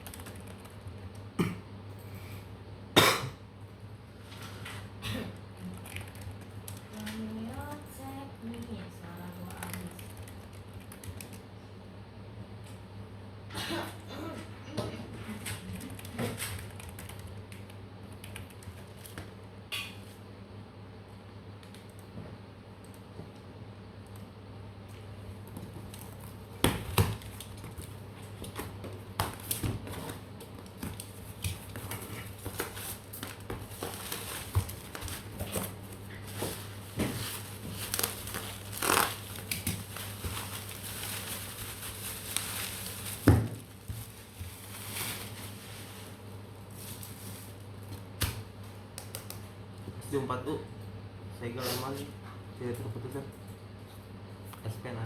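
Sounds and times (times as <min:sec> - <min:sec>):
packaging crinkling: 0:29.3 - 0:48.1.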